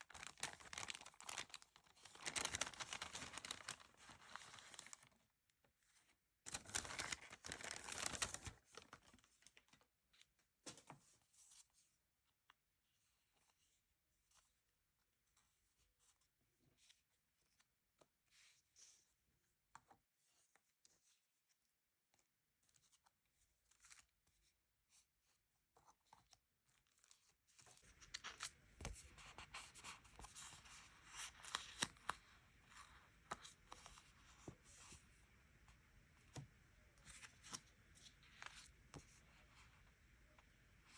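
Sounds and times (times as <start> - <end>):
paper rustling: 0.0 - 5.1, 6.5 - 9.6, 27.6 - 35.2, 36.2 - 39.8.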